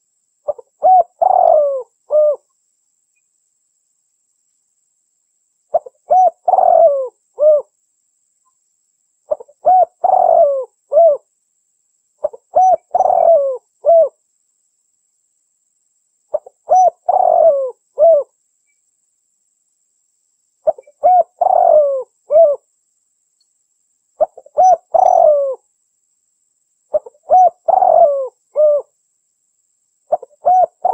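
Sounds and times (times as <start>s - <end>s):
dove cooing: 0.5s - 2.4s, 5.7s - 7.7s, 9.3s - 11.2s, 12.2s - 14.2s, 16.3s - 18.3s, 20.6s - 22.6s, 24.2s - 25.6s, 26.9s - 28.9s, 30.1s - 30.9s.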